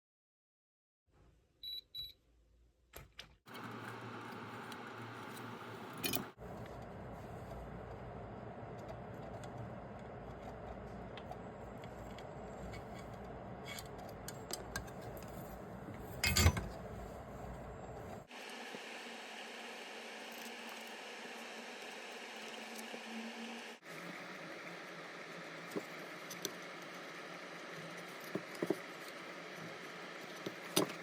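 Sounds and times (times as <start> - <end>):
steady background hum: 3.5 - 31.0
metal tools clinking: 13.7 - 16.8.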